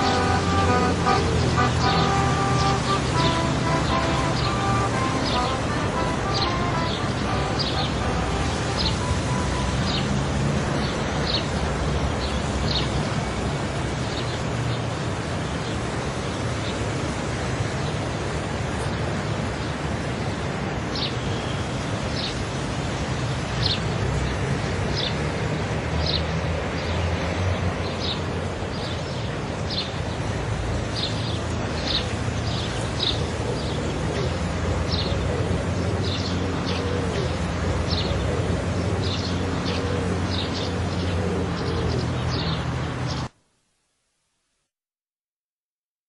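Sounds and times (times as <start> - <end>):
bird chirping: 0.0 - 10.2.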